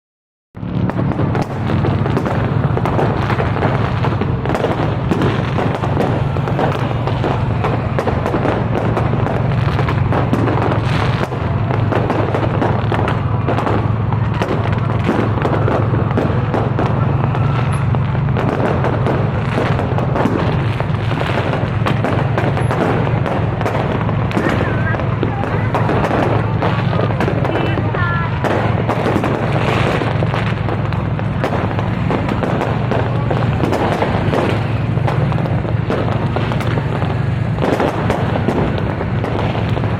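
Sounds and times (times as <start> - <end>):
fireworks cracking and banging: 0.6 - 39.9.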